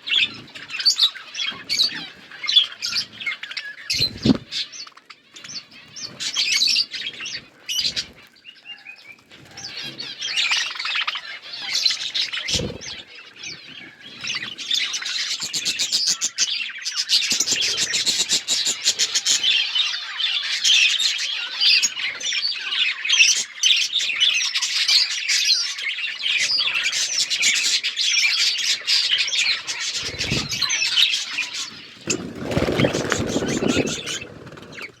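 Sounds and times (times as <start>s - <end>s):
budgerigars chirping and chattering: 0.0s - 35.0s
wings fluttering: 0.1s - 16.2s, 28.9s - 35.0s.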